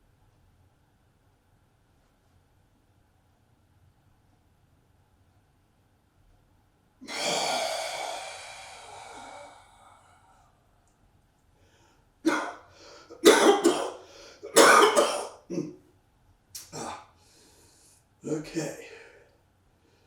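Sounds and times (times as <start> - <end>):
forceful voiced exhale: 7.0 - 10.5
person coughing: 7.1 - 9.5, 12.3 - 15.8, 16.6 - 17.1.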